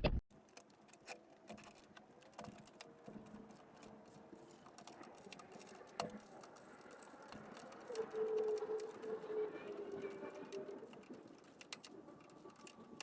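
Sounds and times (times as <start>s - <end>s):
faint clicks and light knocks: 0.4s - 13.0s.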